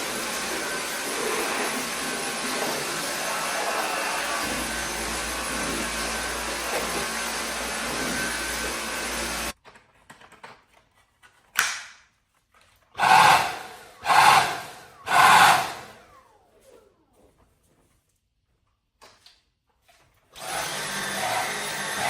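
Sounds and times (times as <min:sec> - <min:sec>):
vacuum cleaner running: 0:00.0 - 0:09.6, 0:13.0 - 0:17.4, 0:20.4 - 0:22.0.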